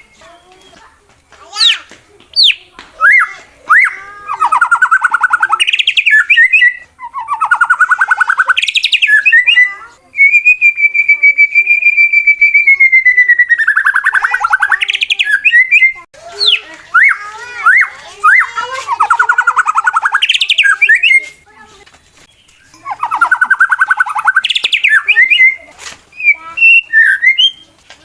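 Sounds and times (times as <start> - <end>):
songbird whistles and trills: 0.0 - 0.9, 1.5 - 21.6, 22.2 - 27.8.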